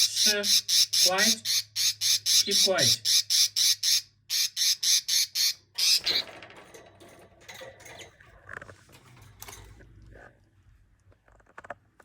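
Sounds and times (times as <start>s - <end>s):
budgie squawking: 0.0s - 6.2s
scratching and rustling: 6.0s - 12.0s.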